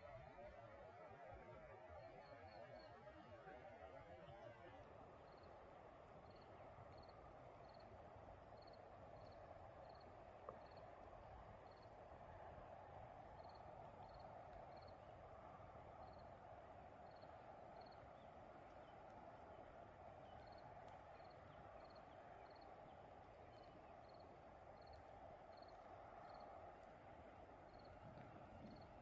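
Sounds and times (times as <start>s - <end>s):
steady low hiss: 0.0s - 29.0s
cricket chirping: 1.5s - 5.5s, 6.2s - 7.9s, 8.6s - 10.9s, 11.6s - 11.9s, 13.4s - 15.0s, 16.0s - 16.2s, 17.0s - 18.0s, 20.4s - 20.6s, 21.2s - 22.7s, 23.5s - 26.5s, 27.7s - 28.0s, 28.6s - 29.0s.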